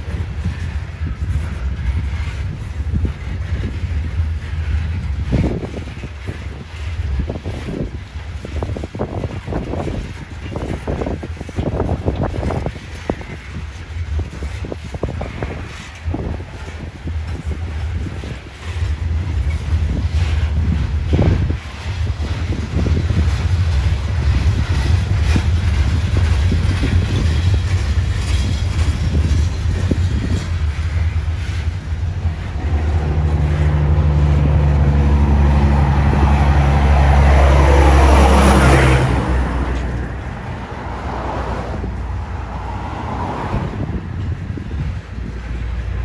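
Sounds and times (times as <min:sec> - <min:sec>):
freight train wheels rumbling: 0:00.0 - 0:46.0
passing vehicle engine: 0:28.4 - 0:46.0.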